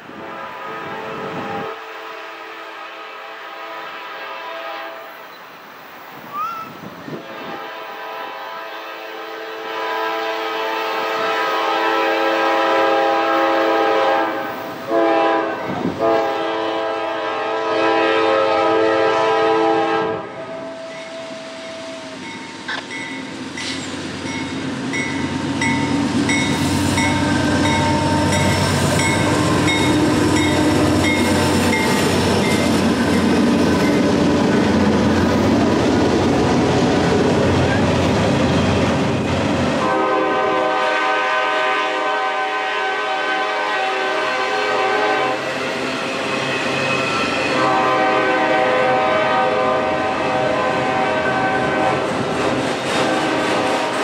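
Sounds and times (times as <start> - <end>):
locomotive air horn blasts: 0.2 - 5.2, 7.1 - 22.2, 26.5 - 32.5, 39.8 - 45.5, 47.3 - 52.1, 53.0 - 53.9
train wheels clattering over rail joints: 52.1 - 54.0.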